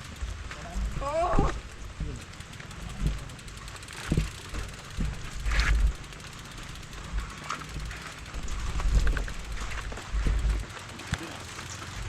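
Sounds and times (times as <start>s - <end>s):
bicycle frame rattling: 0.0s - 12.0s
bicycle freewheel ticking: 0.0s - 12.0s
wind rumble on microphone: 7.0s - 10.7s.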